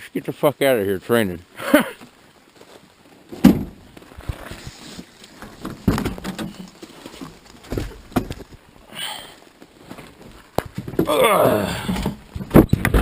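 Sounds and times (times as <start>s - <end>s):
low background noise: 0.0s - 13.0s
irregular knocks and thumps: 3.3s - 4.4s, 5.4s - 8.6s, 10.3s - 11.2s, 11.8s - 13.0s.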